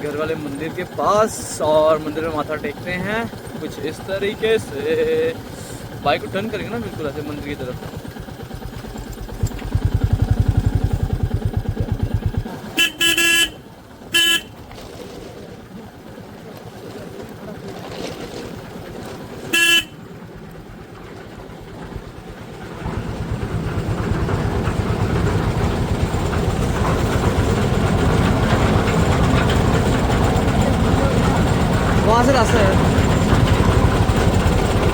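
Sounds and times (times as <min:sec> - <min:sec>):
motorcycle engine running: 0:00.0 - 0:34.9
motorcycle horn honking: 0:12.7 - 0:14.6, 0:19.5 - 0:20.0.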